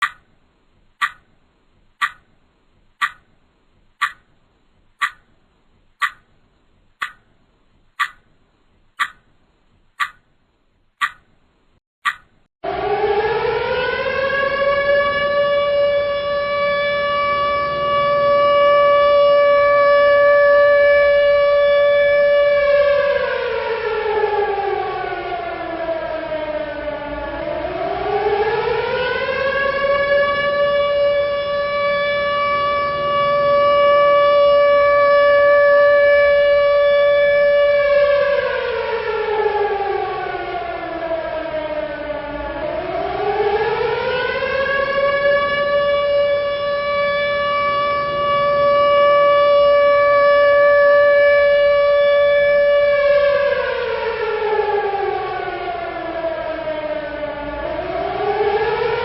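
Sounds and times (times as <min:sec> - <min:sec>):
civil defense siren wailing: 0:12.6 - 0:59.0.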